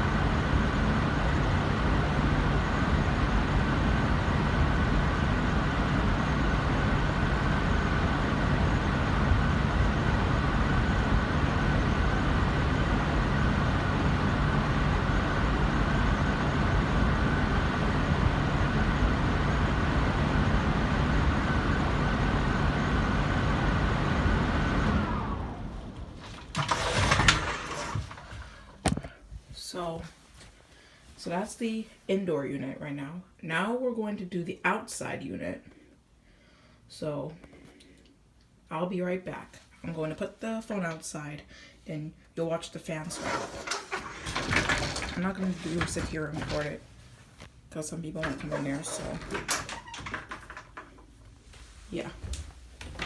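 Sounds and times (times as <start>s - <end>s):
air handler blower running: 0.0s - 30.0s, 43.0s - 53.0s.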